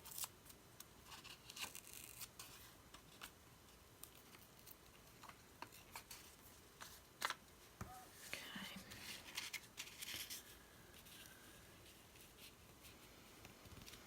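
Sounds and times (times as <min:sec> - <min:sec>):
paper and card rustling: 0:04.0 - 0:07.4, 0:08.2 - 0:14.0.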